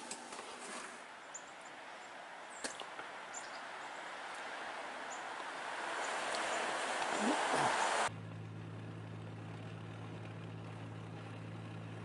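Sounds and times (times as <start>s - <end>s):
outdoor background hiss: 0.0s - 8.1s.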